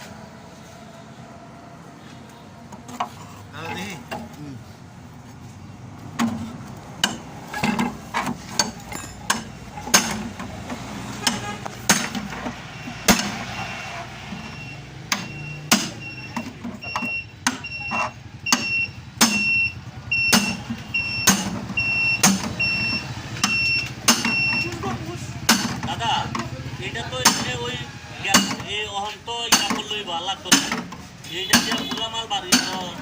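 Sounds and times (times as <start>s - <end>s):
hammer on sheet metal: 18.6s - 19.5s, 28.3s - 28.6s, 30.5s - 30.9s, 31.5s - 32.9s.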